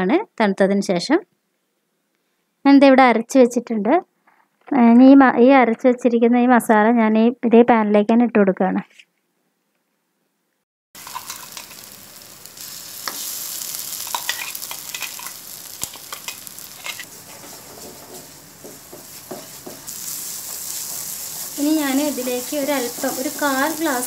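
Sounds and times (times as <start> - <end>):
paste sizzling in oil: 11.0 - 24.0
spatula stirring and scraping: 12.5 - 23.6.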